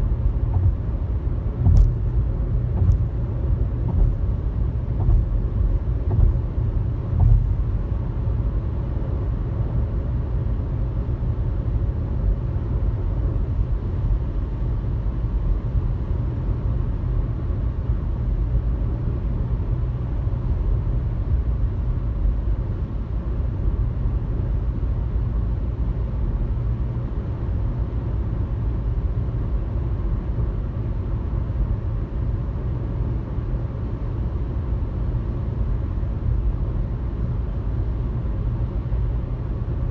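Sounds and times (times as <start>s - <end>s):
car road and engine rumble: 0.0s - 39.9s
light bumps: 1.6s - 2.1s, 2.7s - 4.4s, 5.0s - 6.5s, 7.1s - 7.7s.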